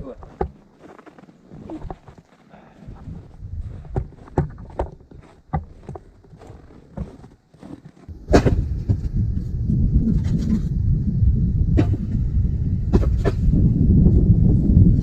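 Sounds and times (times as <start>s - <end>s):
firewood knocking and clattering: 0.1s - 0.9s, 3.6s - 9.1s
loud thump: 8.1s - 9.3s, 11.7s - 12.2s, 12.9s - 13.5s
steady low rumble: 8.1s - 15.0s.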